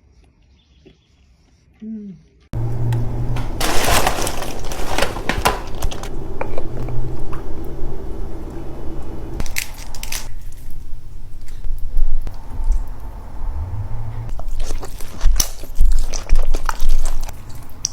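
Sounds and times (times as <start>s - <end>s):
steady low hum: 2.6s - 14.8s
seafood shells cracking: 9.4s - 10.7s.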